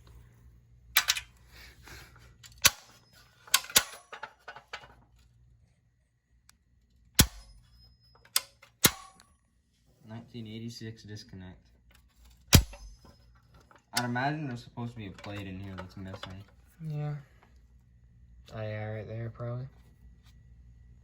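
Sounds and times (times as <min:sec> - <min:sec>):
sharp metallic clicks and knocks: 0:07.2 - 0:09.3, 0:12.5 - 0:14.3.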